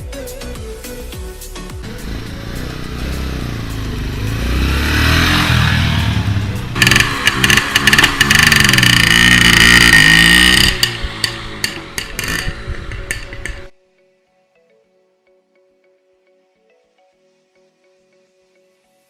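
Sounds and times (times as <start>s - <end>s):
motorcycle engine revving: 1.8s - 13.7s.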